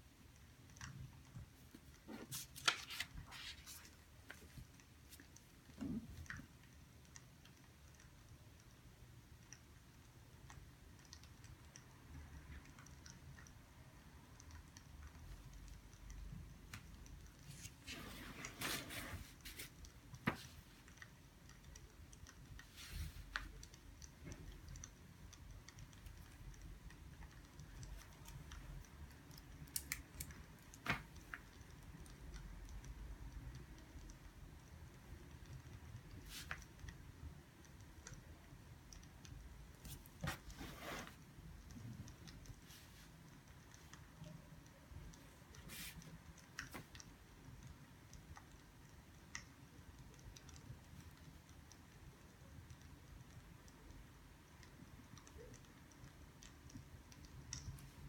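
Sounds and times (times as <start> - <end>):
low room hum: 0.0 - 58.0
paper rustling: 2.1 - 4.6.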